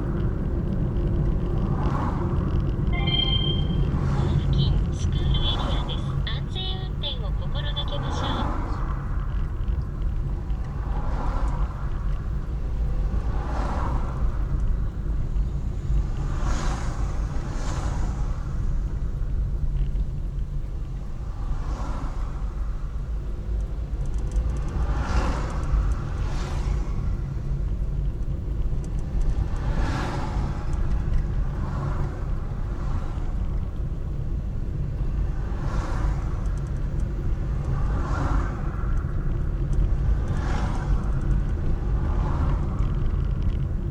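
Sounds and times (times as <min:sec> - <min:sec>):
traffic rumble: 0:00.0 - 0:43.9
cars swishing past: 0:07.6 - 0:09.8, 0:10.6 - 0:14.8, 0:15.4 - 0:19.1, 0:21.2 - 0:23.1, 0:23.7 - 0:28.0, 0:28.9 - 0:33.8, 0:34.7 - 0:43.8.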